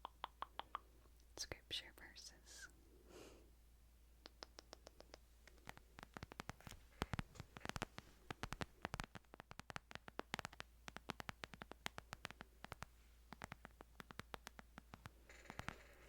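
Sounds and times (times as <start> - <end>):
fingernail taps on a book: 4.7 - 15.2.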